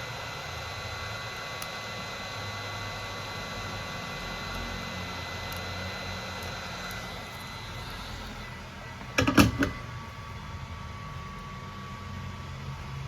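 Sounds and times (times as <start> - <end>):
electrical hum with high whine: 0.0 - 13.0.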